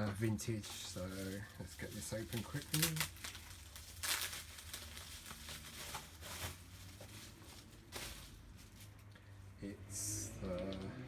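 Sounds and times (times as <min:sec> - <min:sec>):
packaging crinkling and tearing: 0:00.6 - 0:09.0.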